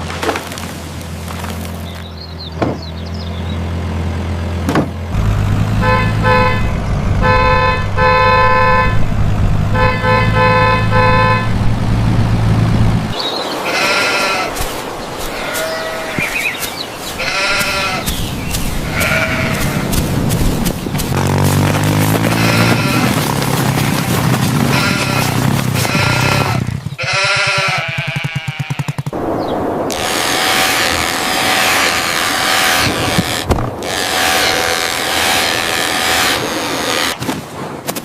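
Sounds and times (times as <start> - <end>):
cartoon tractor engine humming: 1.1 - 13.2, 16.9 - 37.2
horn honking: 5.1 - 16.4, 18.8 - 20.4, 21.0 - 23.9, 24.6 - 29.0, 29.9 - 37.2
sheep bleating: 13.6 - 14.6, 15.3 - 16.6, 17.2 - 18.1, 18.8 - 19.9, 22.3 - 23.2, 24.7 - 29.0.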